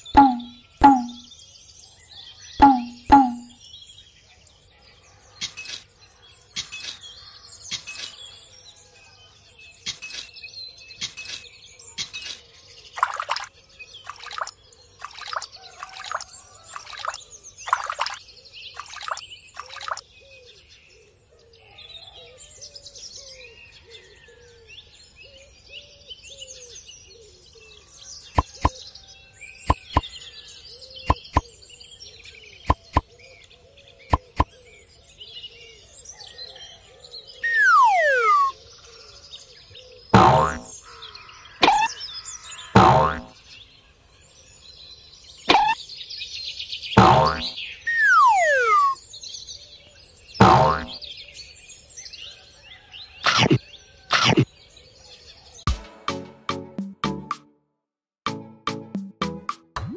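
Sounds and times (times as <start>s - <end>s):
small birds chirping: 9.5s - 20.3s, 27.6s - 34.9s, 37.3s - 51.6s, 52.8s - 55.5s.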